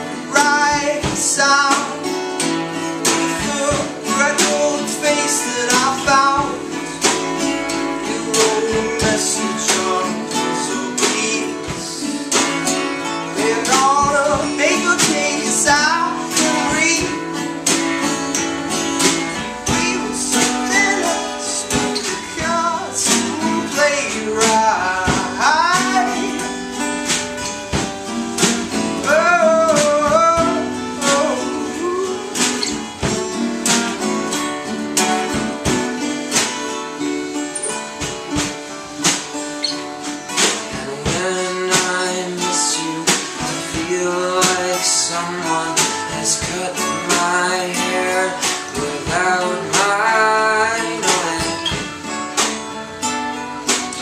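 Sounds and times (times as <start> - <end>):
person singing: 0.0 - 2.3, 2.9 - 18.0, 19.0 - 26.8, 29.0 - 33.8, 40.6 - 52.1
strummed acoustic guitar: 0.0 - 54.0.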